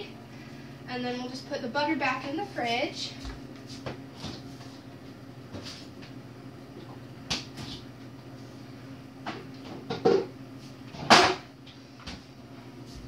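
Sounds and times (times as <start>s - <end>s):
microwave oven humming: 0.0s - 13.0s
kitchen knocks and clunks: 9.3s - 10.3s, 11.0s - 11.4s.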